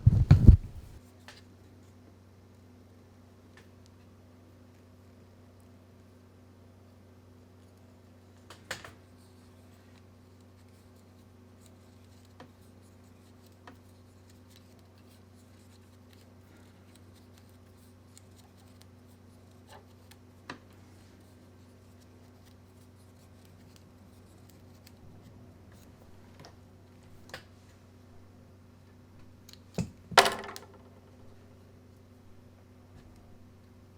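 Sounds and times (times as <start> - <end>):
steady low hum: 0.0 - 1.0, 9.0 - 30.2.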